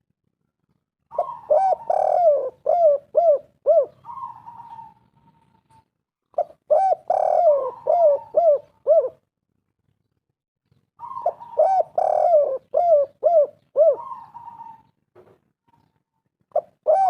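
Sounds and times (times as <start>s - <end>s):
dove cooing: 1.1s - 9.3s, 11.0s - 15.0s, 16.5s - 17.0s.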